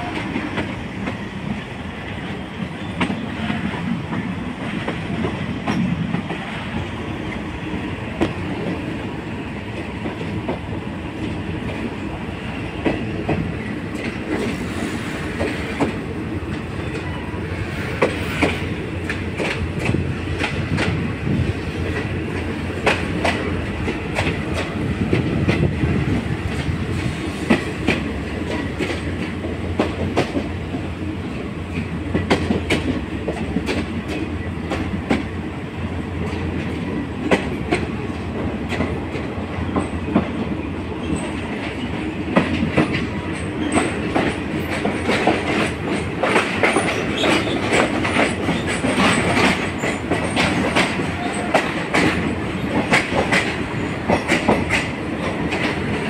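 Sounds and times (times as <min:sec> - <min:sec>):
train rumbling on rails: 0:00.0 - 0:56.0
wheels clacking over rail joints: 0:12.6 - 0:35.4, 0:36.2 - 0:56.0.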